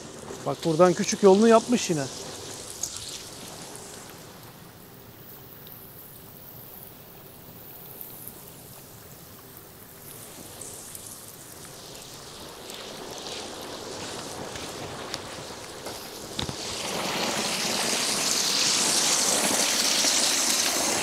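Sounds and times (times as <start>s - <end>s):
running water rushing: 0.0s - 5.6s, 9.9s - 21.0s.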